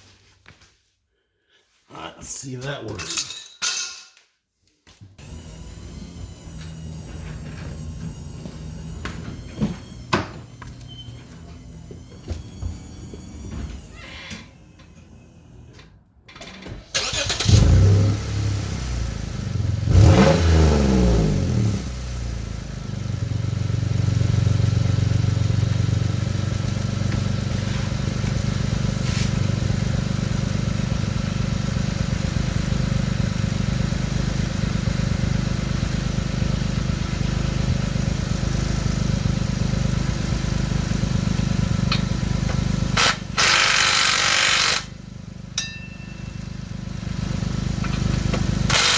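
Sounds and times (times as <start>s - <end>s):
car engine starting and revving: 5.2s - 10.1s, 16.7s - 45.0s, 46.9s - 48.9s.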